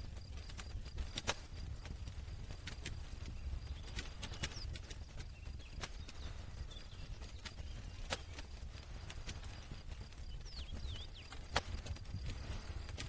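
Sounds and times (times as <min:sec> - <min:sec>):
low rumble of burning fire: 0:00.0 - 0:13.0
wood fire popping and snapping: 0:00.0 - 0:13.0.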